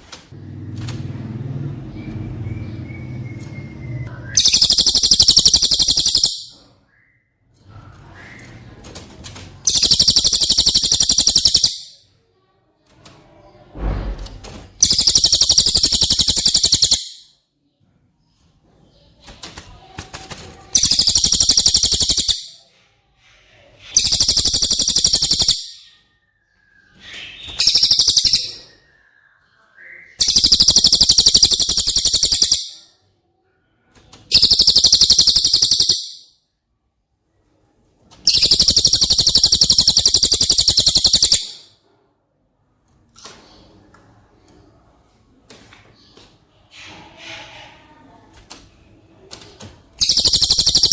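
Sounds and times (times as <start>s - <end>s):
songbird rapid high trill: 4.4s - 6.5s, 9.7s - 12.0s, 14.8s - 17.2s, 20.8s - 22.6s, 24.0s - 25.8s, 27.6s - 28.6s, 30.2s - 32.8s, 34.3s - 36.2s, 38.3s - 41.6s, 50.0s - 50.9s.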